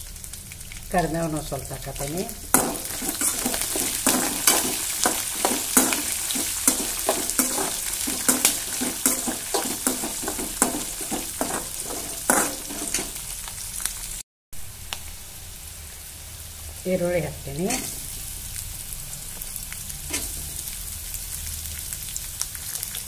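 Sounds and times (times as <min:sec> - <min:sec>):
food sizzling in hot oil: 0:00.0 - 0:23.0
metal spoon scraping a pan: 0:02.3 - 0:13.3, 0:17.6 - 0:18.1, 0:20.1 - 0:20.8.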